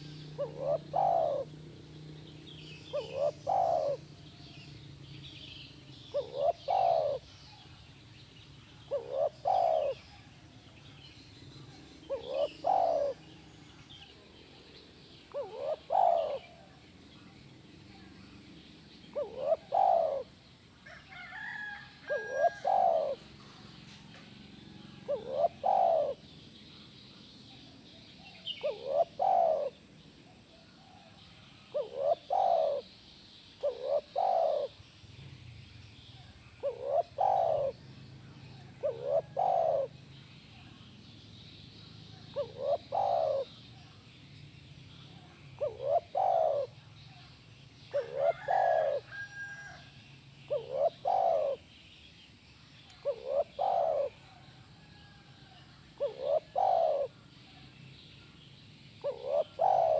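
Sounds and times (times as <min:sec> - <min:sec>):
dove cooing: 0:00.0 - 0:07.8, 0:08.6 - 0:10.9, 0:11.6 - 0:17.2, 0:19.0 - 0:20.4, 0:21.2 - 0:23.7, 0:24.7 - 0:26.4, 0:28.2 - 0:32.9, 0:33.5 - 0:34.8, 0:36.6 - 0:40.8, 0:42.2 - 0:43.8, 0:45.2 - 0:47.2, 0:47.9 - 0:49.8, 0:50.5 - 0:51.7, 0:53.0 - 0:57.3, 0:59.0 - 0:59.9.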